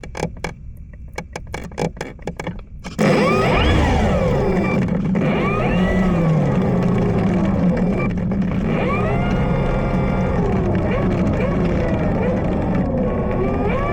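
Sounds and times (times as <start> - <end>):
rc plane motor whine: 2.9 - 13.9.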